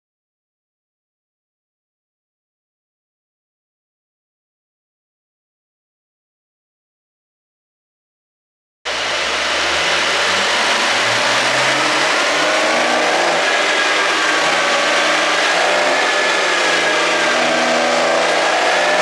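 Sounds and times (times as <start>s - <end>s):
car engine running: 8.9s - 19.0s.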